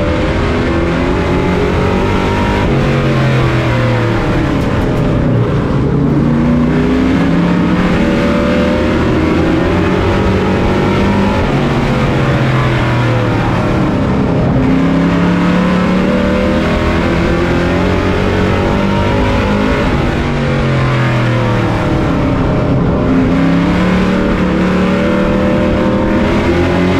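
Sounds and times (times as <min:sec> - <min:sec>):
truck engine revving: 0:00.0 - 0:26.9.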